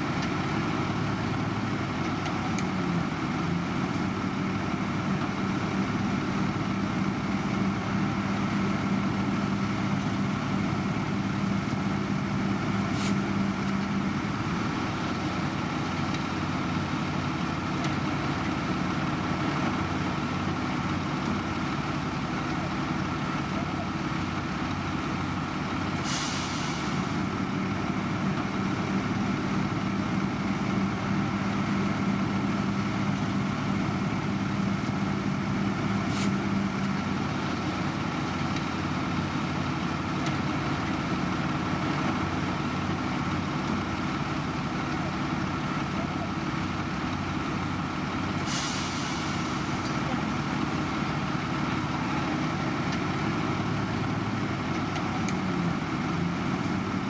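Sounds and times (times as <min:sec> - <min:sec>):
heavy diesel machinery running: 0:00.0 - 0:57.0
hissing air bursts: 0:48.4 - 0:49.8.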